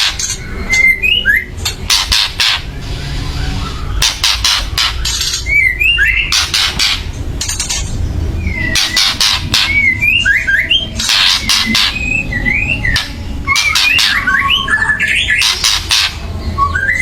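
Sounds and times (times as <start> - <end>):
bird harsh rasping chatter: 0.0 - 16.6
bird whistled notes: 0.3 - 7.0, 8.4 - 17.0.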